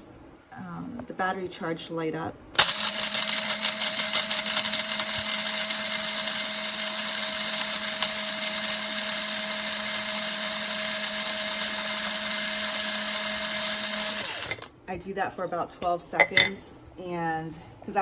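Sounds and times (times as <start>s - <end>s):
coffee grinder grinding beans: 2.6s - 14.7s.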